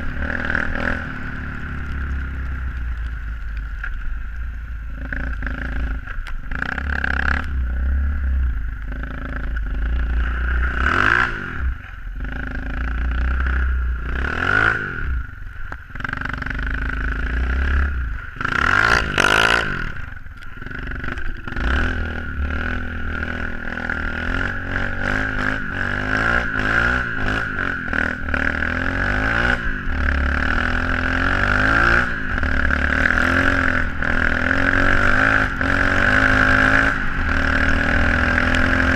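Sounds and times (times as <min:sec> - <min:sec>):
motorbike engine revving: 0:00.0 - 0:03.0, 0:04.8 - 0:38.9.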